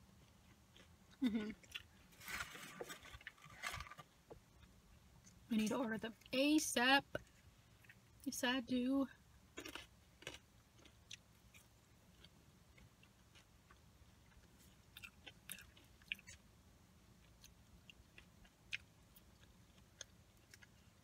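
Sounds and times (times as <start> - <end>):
chewing food: 0.0 - 2.1, 9.6 - 16.5, 17.1 - 21.0
low steady hum: 0.0 - 21.0.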